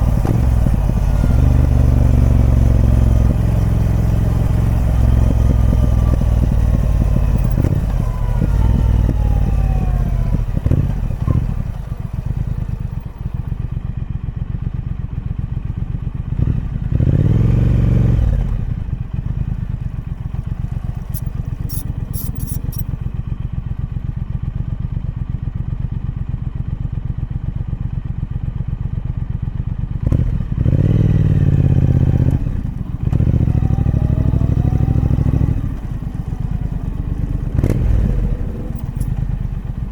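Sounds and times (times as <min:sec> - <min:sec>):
motorcycle engine revving: 0:00.0 - 0:13.8, 0:16.3 - 0:22.9, 0:30.0 - 0:39.9.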